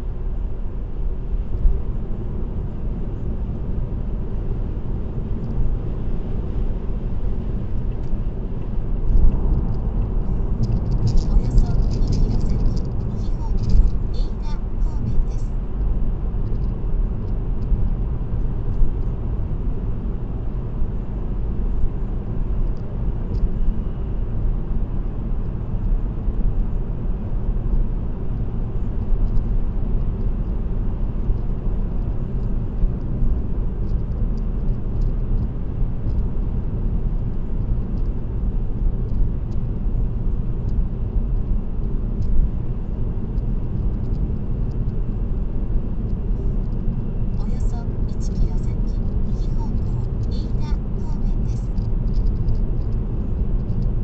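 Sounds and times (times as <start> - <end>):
car interior road noise: 0.0 - 54.0
faint light ticks: 28.4 - 29.5, 33.8 - 36.3, 42.1 - 42.5, 43.3 - 45.0, 51.7 - 53.0, 53.6 - 54.0.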